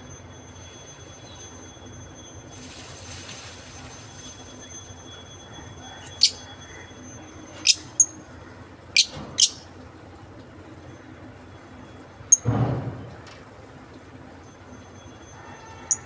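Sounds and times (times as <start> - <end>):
parrots chirping shrilly: 6.0 - 6.5, 7.6 - 8.1, 9.0 - 9.6.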